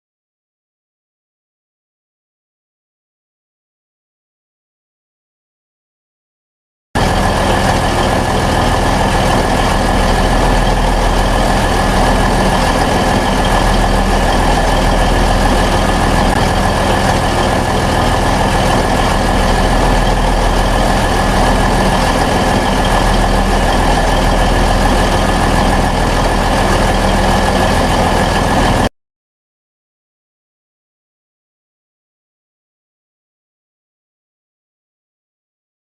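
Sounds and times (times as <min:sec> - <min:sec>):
diesel locomotive idling: 0:07.0 - 0:28.9
steady high whine: 0:07.0 - 0:28.9.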